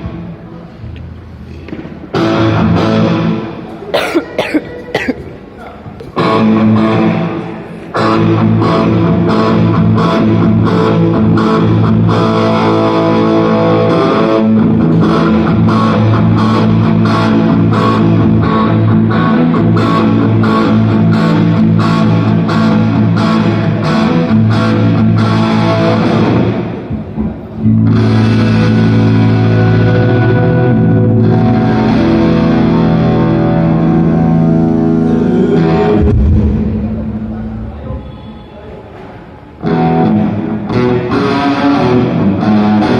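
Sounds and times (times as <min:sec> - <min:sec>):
distorted electric guitar: 0:00.0 - 0:38.2, 0:39.6 - 0:42.9
sharp drum hits: 0:36.0 - 0:37.5.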